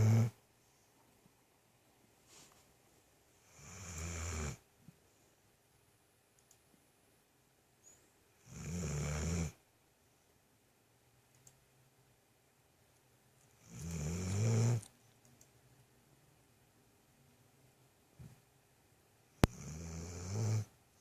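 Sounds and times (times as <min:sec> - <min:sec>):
dog snoring: 0:00.0 - 0:00.4, 0:03.4 - 0:04.6, 0:08.4 - 0:09.6, 0:13.6 - 0:14.9, 0:19.4 - 0:20.7.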